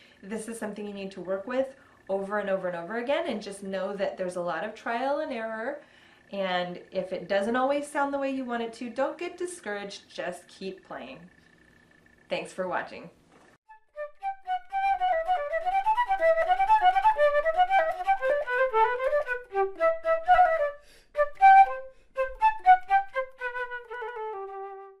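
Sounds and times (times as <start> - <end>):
solo flute melody: 13.7 - 25.0.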